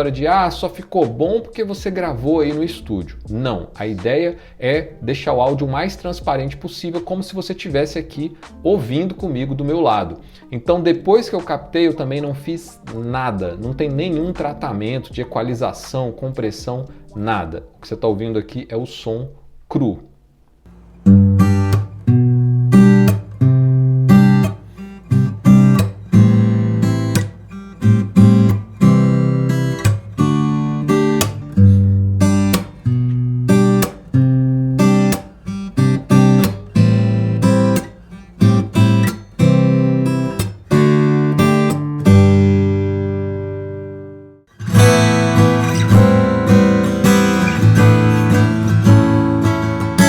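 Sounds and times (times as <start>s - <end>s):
fingerstyle acoustic guitar: 20.7s - 50.0s.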